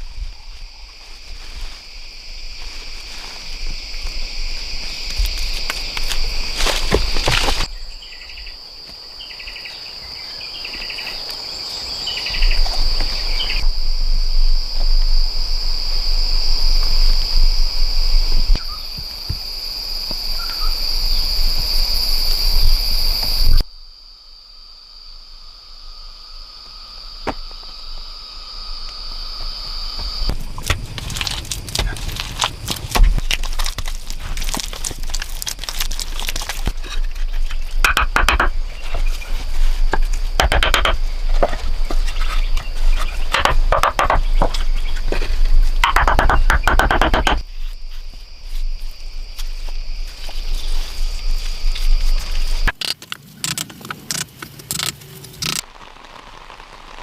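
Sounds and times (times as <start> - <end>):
insects droning: 0.0 - 57.0
knocks and handling noise: 30.6 - 39.2, 39.8 - 47.4.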